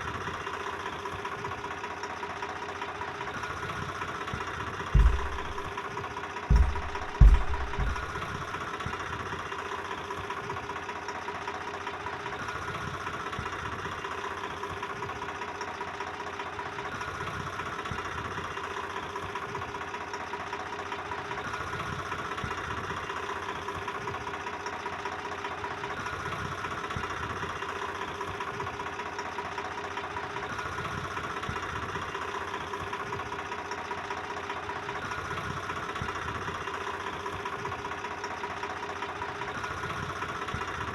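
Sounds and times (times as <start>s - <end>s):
heavy low thumps: 5.0s - 5.7s, 6.5s - 8.4s
tractor engine running: 5.0s - 5.7s, 6.5s - 8.6s.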